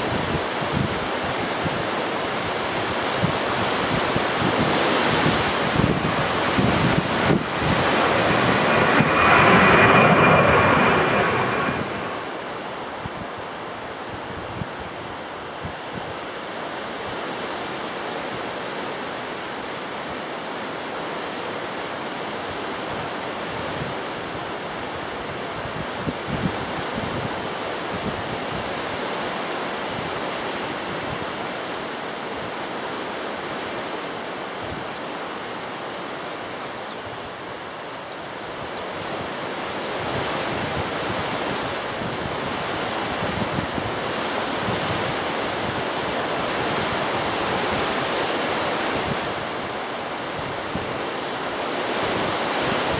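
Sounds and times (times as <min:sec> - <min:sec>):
gusty wind buffeting microphone: 0:05.3 - 0:13.4, 0:38.5 - 0:51.0.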